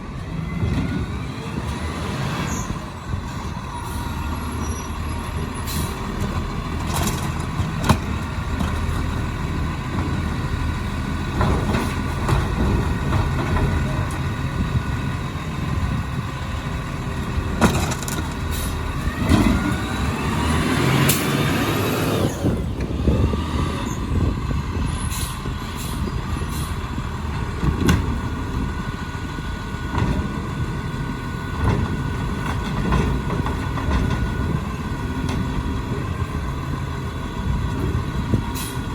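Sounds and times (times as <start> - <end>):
diesel engine running: 0.0 - 38.9
knocks and clanks: 17.5 - 18.5, 31.5 - 34.6.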